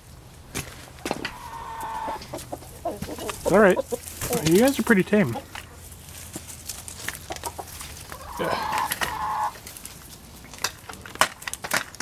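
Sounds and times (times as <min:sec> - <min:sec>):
chickens clucking: 0:00.2 - 0:10.6
drawn-out chicken call: 0:00.9 - 0:06.0, 0:07.1 - 0:09.7.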